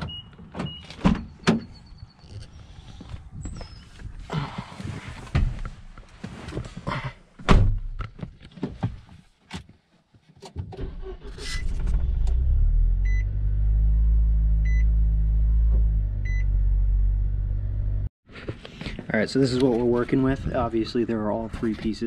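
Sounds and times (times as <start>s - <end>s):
loud thump: 7.4s - 7.8s
car engine starting and idling: 10.6s - 18.1s.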